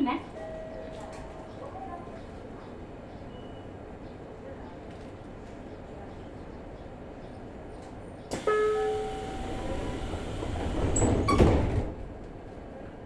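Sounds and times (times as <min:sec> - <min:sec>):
train door hiss: 0:08.3 - 0:12.0
train doors shutting thud: 0:08.3 - 0:12.5.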